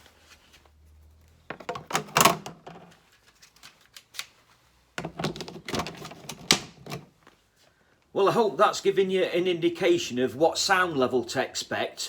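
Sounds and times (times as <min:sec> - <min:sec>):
hard objects clicking and clattering: 0:05.0 - 0:07.1.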